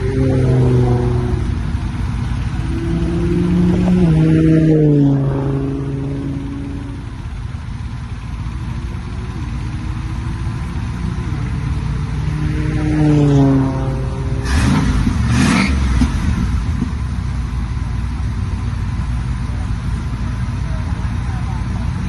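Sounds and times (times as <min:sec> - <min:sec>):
car engine passing by: 0:00.0 - 0:07.3, 0:08.3 - 0:16.9.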